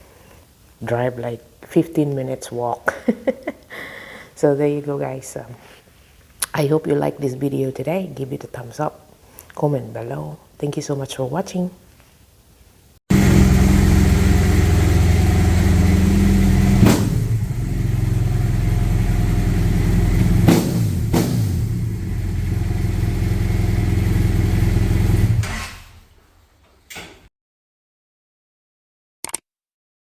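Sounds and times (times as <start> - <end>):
motorcycle engine running: 13.1 - 25.4.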